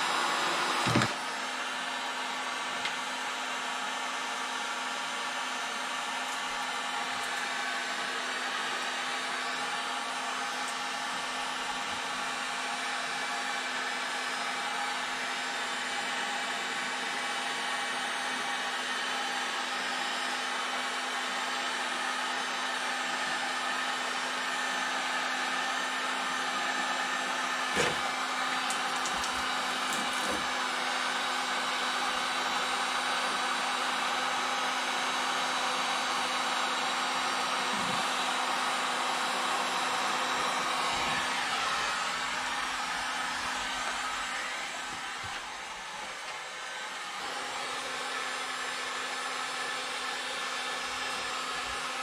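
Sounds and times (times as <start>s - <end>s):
heat gun fan humming: 26.6s - 31.1s, 37.3s - 52.0s.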